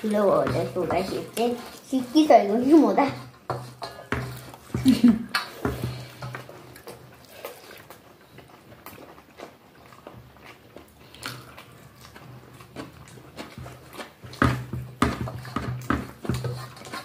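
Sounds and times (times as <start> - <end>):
soft chewing with wet mouth clicks: 6.3 - 14.4.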